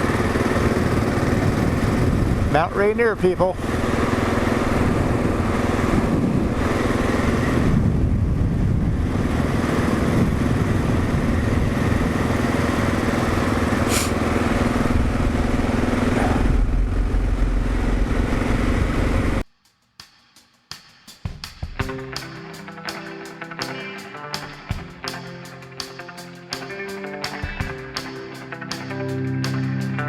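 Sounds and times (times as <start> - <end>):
motorcycle engine cruising: 0.0 - 19.4
wind and road noise: 0.0 - 19.4.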